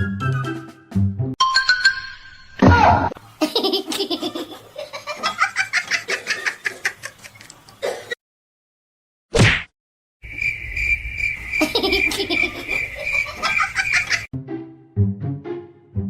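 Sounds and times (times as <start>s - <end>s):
person laughing: 3.4s - 8.1s, 11.6s - 14.3s.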